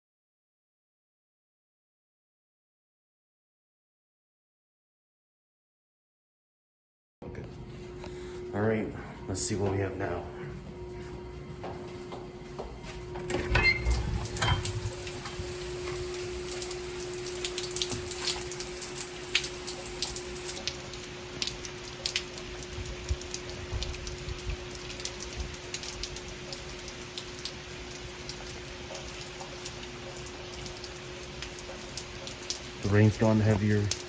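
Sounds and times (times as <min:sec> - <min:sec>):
faint steady hum: 0:07.2 - 0:34.0
heavy rain on hard surfaces: 0:13.9 - 0:34.0.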